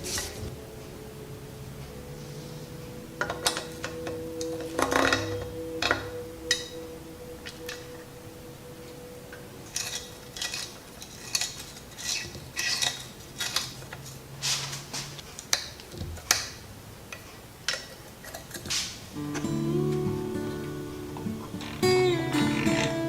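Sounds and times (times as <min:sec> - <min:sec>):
metal tools clinking and scraping: 0:09.6 - 0:15.6.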